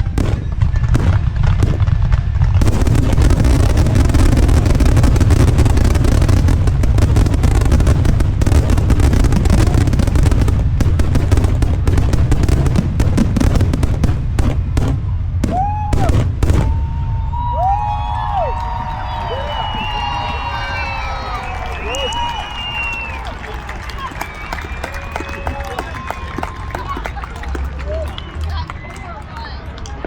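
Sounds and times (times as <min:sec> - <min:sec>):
fireworks shell bursts and crackle: 0:00.0 - 0:16.7
heavy rumble: 0:00.0 - 0:20.1.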